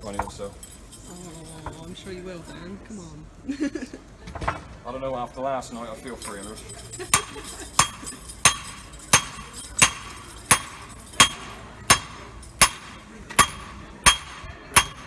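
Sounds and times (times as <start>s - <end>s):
hammer striking anvil: 0.0s - 1.0s, 6.0s - 15.0s.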